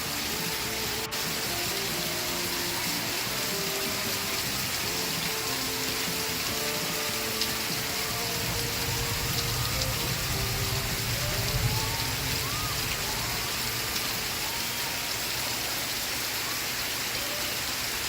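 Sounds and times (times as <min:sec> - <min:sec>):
faint tv music: 0:00.0 - 0:18.0
rain hiss: 0:00.0 - 0:18.0.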